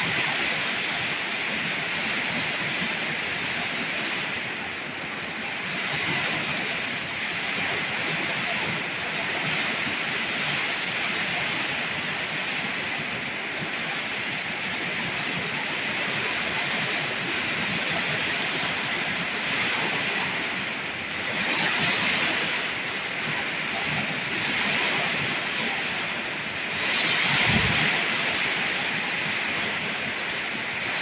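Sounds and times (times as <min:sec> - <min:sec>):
torrential rain pouring: 0:00.0 - 0:31.0.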